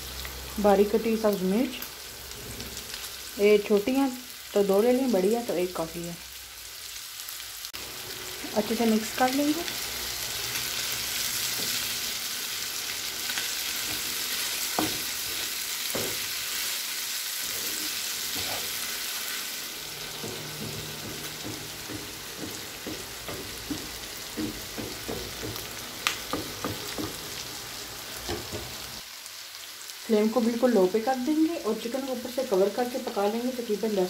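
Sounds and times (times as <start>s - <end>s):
food sizzling in oil: 0.0s - 34.0s
spatula scraping and knocking pan: 13.3s - 16.6s, 17.4s - 27.4s.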